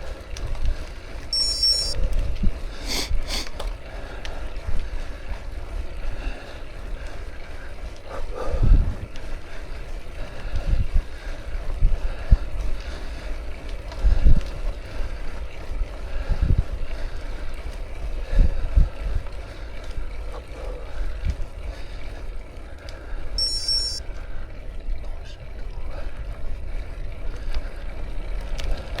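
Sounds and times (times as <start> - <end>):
bicycle rumble on road: 0.0 - 29.0
brief high chirp: 1.4 - 2.0, 23.4 - 24.0.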